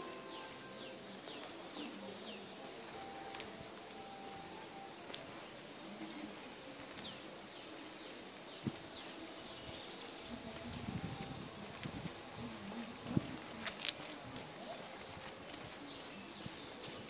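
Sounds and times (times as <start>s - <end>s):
thin steady high tone: 0.0s - 8.4s
birds chirping: 0.0s - 17.0s.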